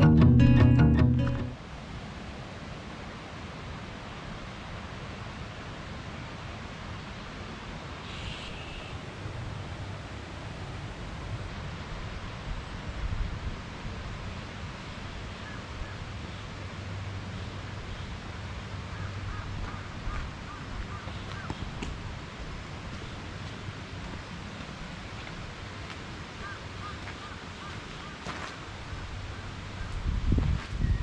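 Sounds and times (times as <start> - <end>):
wind rumble on microphone: 11.2 - 16.1, 28.9 - 31.0.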